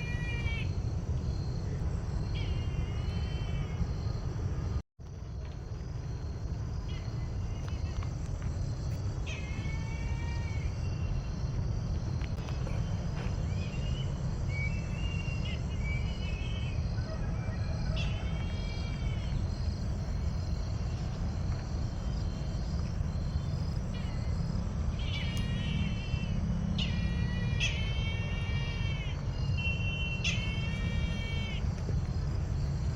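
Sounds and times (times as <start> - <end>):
insect chirring: 18.0 - 32.9
bird calling: 25.0 - 31.7.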